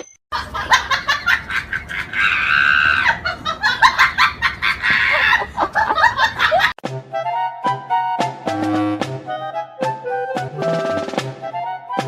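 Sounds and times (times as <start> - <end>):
music with drums and brass: 6.8 - 12.0.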